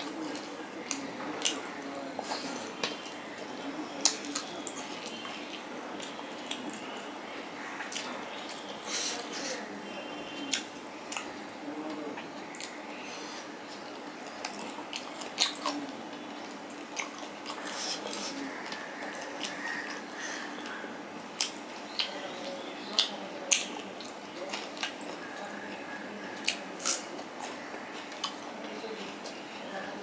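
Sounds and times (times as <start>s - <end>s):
person chewing food: 12.2s - 22.1s, 23.0s - 28.5s.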